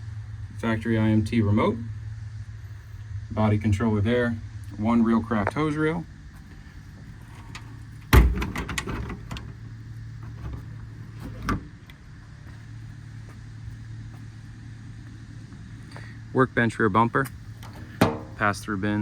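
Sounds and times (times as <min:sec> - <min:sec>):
steady low hum: 0:00.0 - 0:19.0
metal compartment door banging shut: 0:07.5 - 0:09.6, 0:10.2 - 0:11.8, 0:17.6 - 0:18.5.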